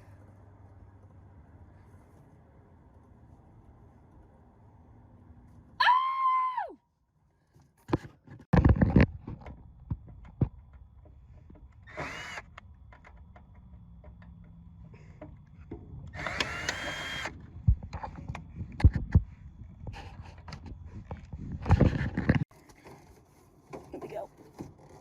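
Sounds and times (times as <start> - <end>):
cordless drill whining: 11.8 - 12.6, 16.1 - 17.4.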